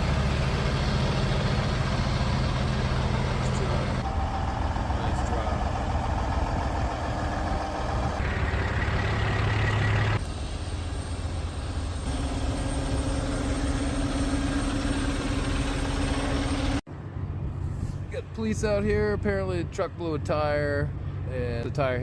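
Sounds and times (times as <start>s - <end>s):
diesel truck engines idling: 0.0s - 22.0s.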